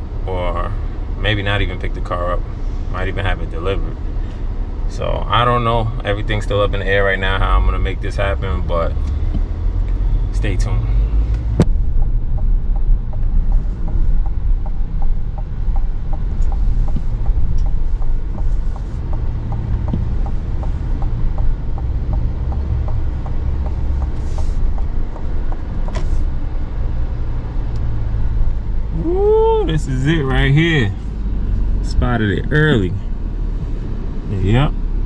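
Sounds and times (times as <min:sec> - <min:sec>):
road and engine rumble: 0:00.0 - 0:35.0
light regular ticking: 0:07.6 - 0:28.7.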